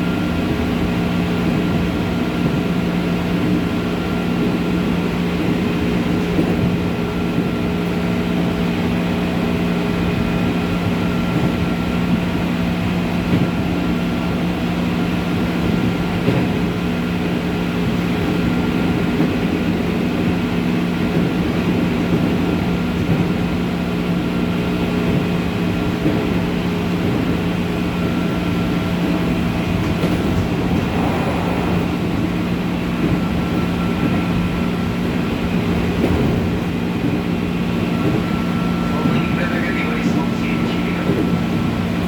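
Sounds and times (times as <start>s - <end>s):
wheel and rail rumble: 0.0s - 42.0s
track knocks: 28.9s - 37.3s.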